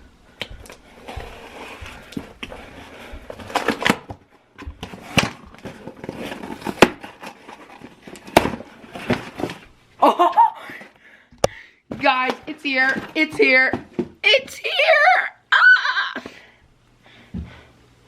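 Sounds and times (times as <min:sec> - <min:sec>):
packaging rustling and tearing: 0:04.8 - 0:09.7.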